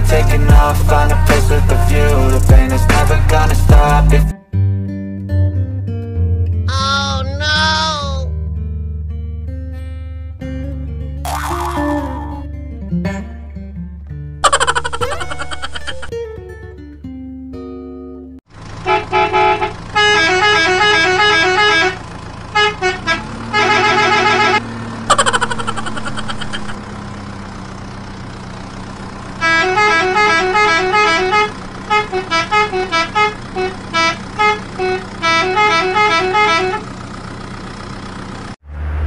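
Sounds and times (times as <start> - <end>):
low engine-like hum: 18.6 - 39.0
electronic horn beeping tune: 29.4 - 36.9.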